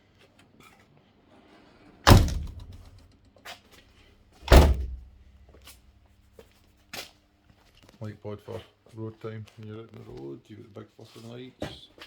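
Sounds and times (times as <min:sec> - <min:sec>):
car body panels slamming shut: 0:02.1 - 0:02.9, 0:04.4 - 0:05.2.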